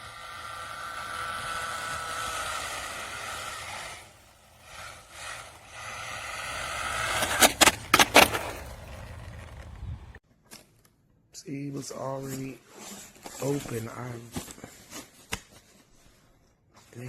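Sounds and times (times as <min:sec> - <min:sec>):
rc car motor whining: 0:00.0 - 0:10.2
tyre and road noise: 0:00.0 - 0:10.2.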